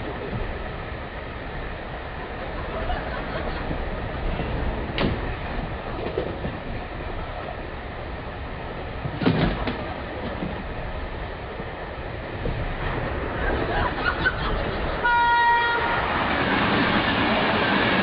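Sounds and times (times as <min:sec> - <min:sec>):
train rumbling with wheel clatter: 0:00.0 - 0:18.0.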